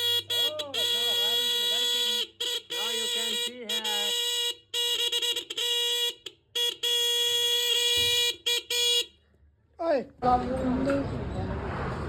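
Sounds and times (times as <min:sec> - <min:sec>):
motorcycle electric horn blasts: 0:00.0 - 0:09.2.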